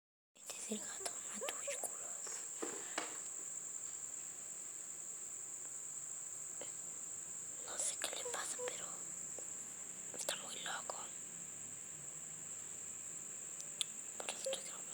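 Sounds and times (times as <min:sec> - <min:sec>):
cricket trilling: 0:00.4 - 0:14.9
faint short rustles: 0:01.8 - 0:04.2.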